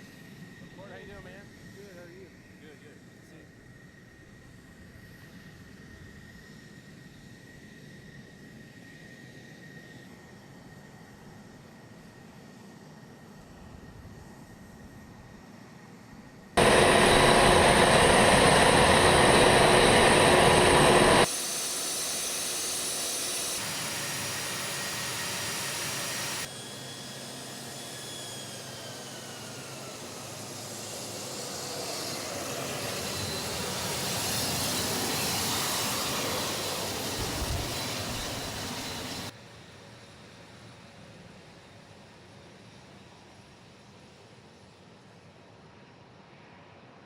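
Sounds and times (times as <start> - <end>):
jet engines whining: 16.6 - 39.3.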